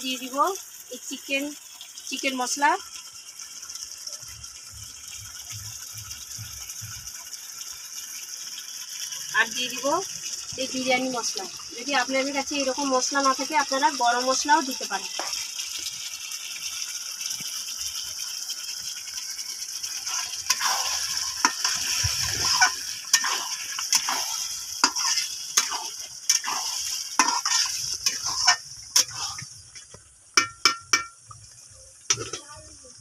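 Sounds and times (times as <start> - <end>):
chicken sizzling in a pan: 0.0 - 33.0
spatula scraping a metal pan: 20.0 - 29.5.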